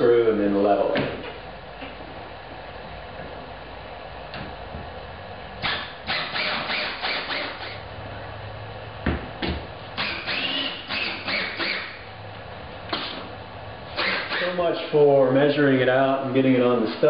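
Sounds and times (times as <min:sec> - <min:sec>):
power drill driving a screw: 0:05.6 - 0:07.8, 0:10.0 - 0:12.0, 0:14.0 - 0:14.6.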